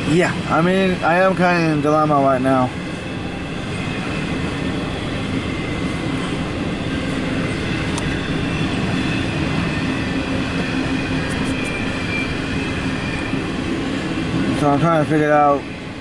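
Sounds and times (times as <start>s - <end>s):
rumble of train wheels on rail: 0.0s - 16.0s
faint high squeal: 11.3s - 13.5s.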